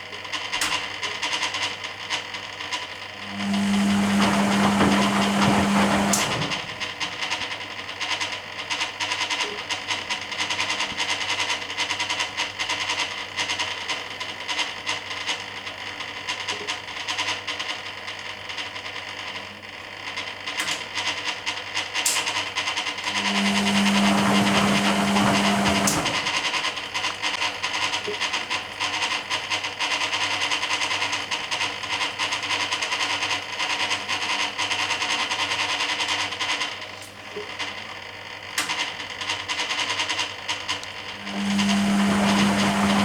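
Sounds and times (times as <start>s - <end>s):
loud motor hum: 2.9s - 7.6s, 22.0s - 28.6s, 40.3s - 43.0s
water and washload churning: 3.3s - 7.2s, 23.0s - 27.4s, 41.1s - 43.0s.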